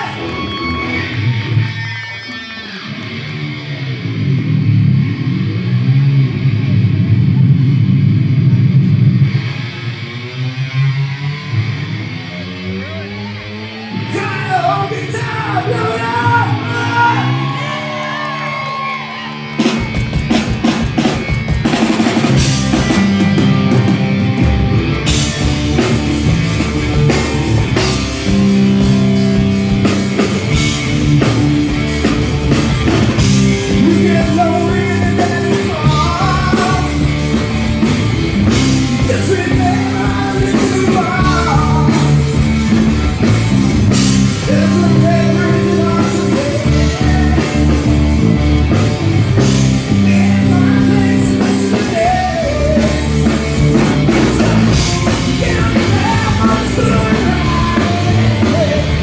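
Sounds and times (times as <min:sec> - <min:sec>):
live rock band playing: 0:00.0 - 0:05.2, 0:13.2 - 0:59.0
lead vocal singing: 0:32.1 - 0:48.3, 0:49.6 - 0:59.0.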